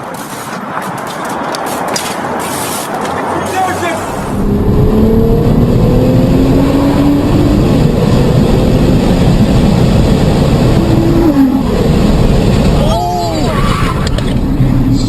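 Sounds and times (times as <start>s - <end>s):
car engine accelerating: 3.2s - 15.0s.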